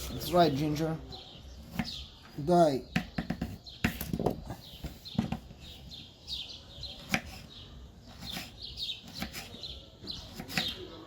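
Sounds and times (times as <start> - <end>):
birds chirping: 0.0 - 11.0
knife slicing ginger: 1.6 - 2.0, 7.0 - 7.5, 8.1 - 10.8.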